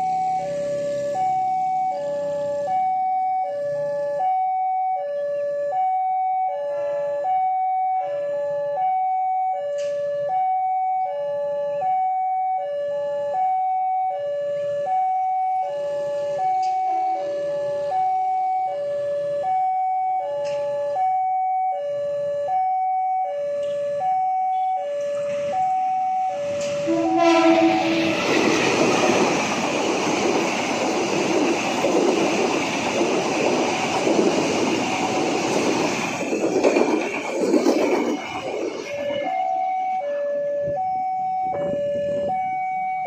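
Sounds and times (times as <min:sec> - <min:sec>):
train passing close by: 0:00.0 - 0:04.3, 0:14.5 - 0:19.6, 0:23.6 - 0:41.0
two-tone hi-lo siren: 0:00.0 - 0:43.0.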